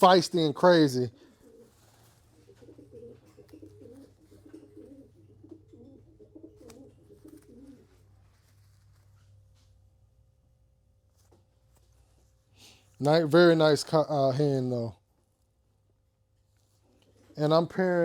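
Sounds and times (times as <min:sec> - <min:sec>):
pigeons cooing: 0:01.0 - 0:08.4.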